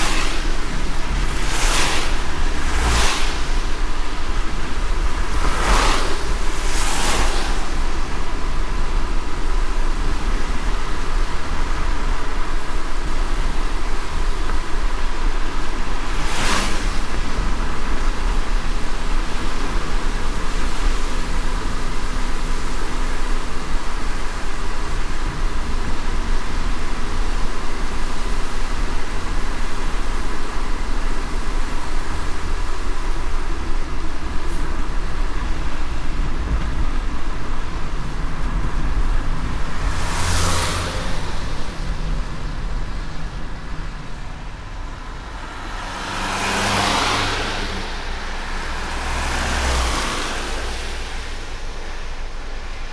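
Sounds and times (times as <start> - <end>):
brief whooshes: 0.0 - 3.7, 5.3 - 8.2, 39.4 - 52.9
rain hiss: 0.0 - 52.9
road and tyre noise: 0.0 - 52.9.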